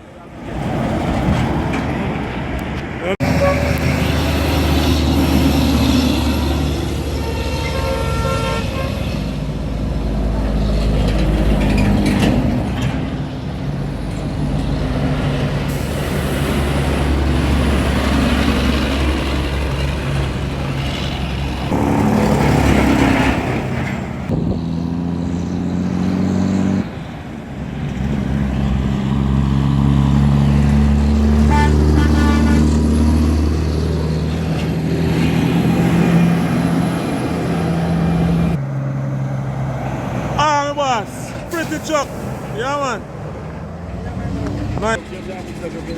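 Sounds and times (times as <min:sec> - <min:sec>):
truck diesel engines rumbling past: 0:00.0 - 0:45.9
truck horn toots: 0:03.2 - 0:04.2, 0:07.1 - 0:09.2, 0:31.4 - 0:32.9.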